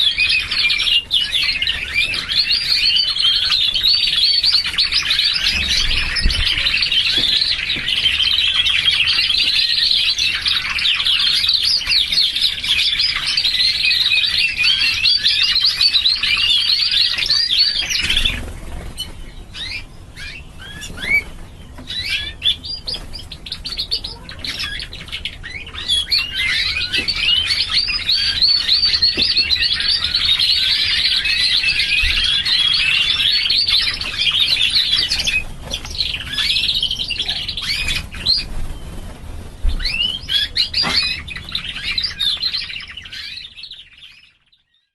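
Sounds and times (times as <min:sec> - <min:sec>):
canaries singing trills: 0:00.0 - 0:44.9.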